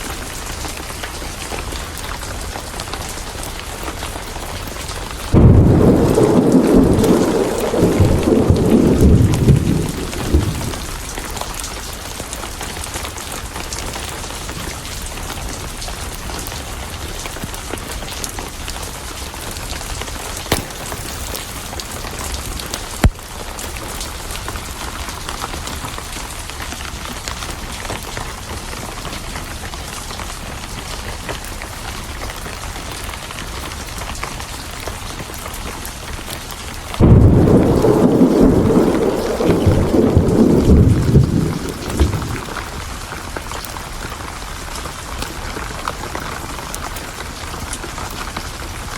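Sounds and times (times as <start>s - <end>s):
steady rain: 0.0s - 48.9s
thunder rumbling: 4.9s - 11.6s, 36.9s - 43.3s
sharp pops: 20.5s - 21.4s.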